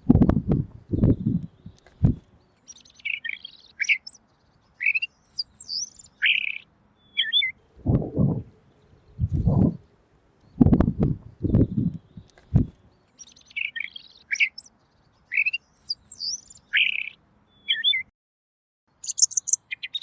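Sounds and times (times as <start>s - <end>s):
low muffled bumps: 0.0s - 2.2s, 7.8s - 8.6s, 9.2s - 9.8s, 10.6s - 12.8s
bird chirping and whistling: 2.7s - 4.2s, 4.8s - 7.5s, 13.2s - 14.7s, 15.4s - 18.1s, 19.0s - 19.6s.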